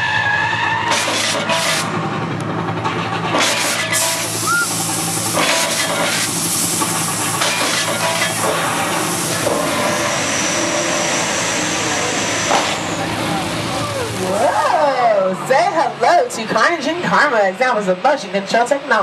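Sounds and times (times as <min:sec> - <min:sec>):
fire jets hissing: 0:03.7 - 0:14.4.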